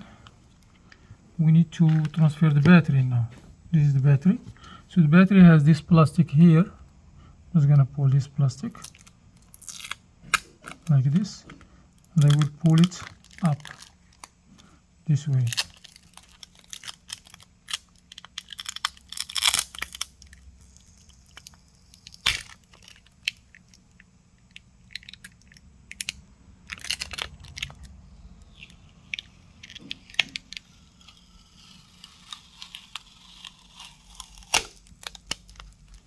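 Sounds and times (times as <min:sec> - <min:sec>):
battery adhesive crackling and clicking: 0:15.5 - 0:36.0.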